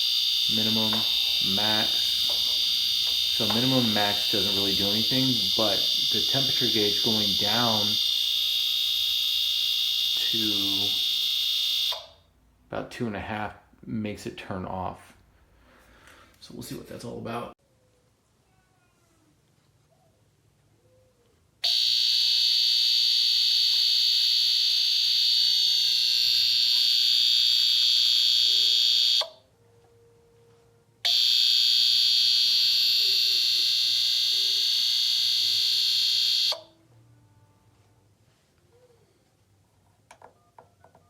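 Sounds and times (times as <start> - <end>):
space heater high-pitched buzzing: 0.0 - 12.2, 21.6 - 29.4, 31.1 - 36.7.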